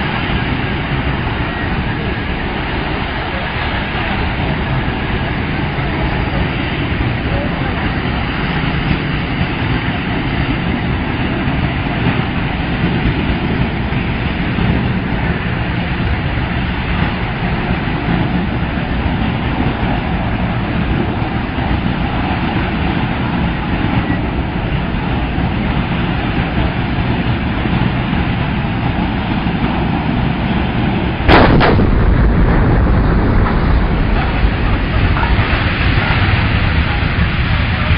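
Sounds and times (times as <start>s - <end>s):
road traffic noise: 0.0s - 37.9s
truck exploding with loud bang: 31.3s - 36.8s.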